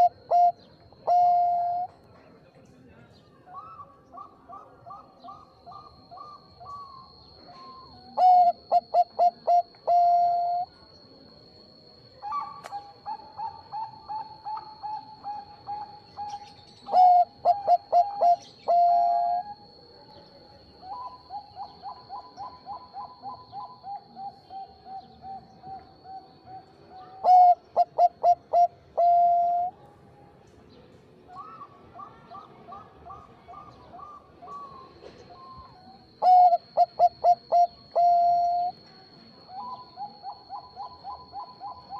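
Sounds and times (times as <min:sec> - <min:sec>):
dove cooing: 0:00.0 - 0:01.9, 0:03.6 - 0:10.7, 0:11.7 - 0:19.8, 0:20.8 - 0:29.8, 0:31.4 - 0:38.8, 0:39.4 - 0:41.9.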